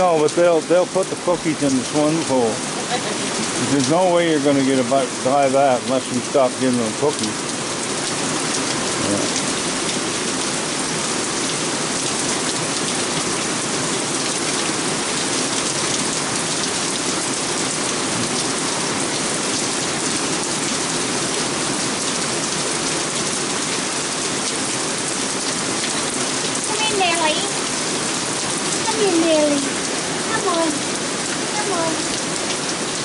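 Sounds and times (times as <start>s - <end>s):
heavy rain on wooden deck: 0.0s - 33.0s.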